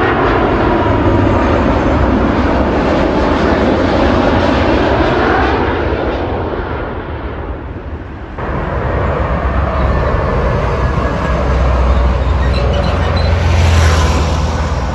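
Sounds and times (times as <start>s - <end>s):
airliner passing overhead: 0.0s - 14.9s
steady rumble: 6.2s - 14.9s.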